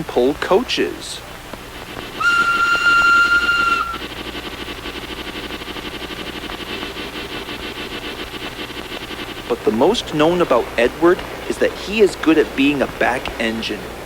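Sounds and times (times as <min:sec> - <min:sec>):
steam engine chuffing: 0:00.0 - 0:14.0
steam locomotive whistle: 0:02.2 - 0:04.1.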